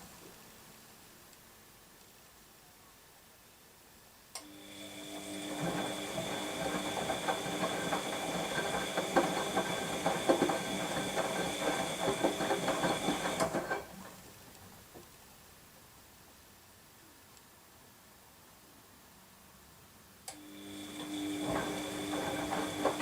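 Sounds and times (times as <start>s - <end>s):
washing machine motor hum: 4.5s - 14.1s, 20.4s - 23.0s
washing machine drum tumbling: 5.5s - 13.9s, 21.4s - 23.0s.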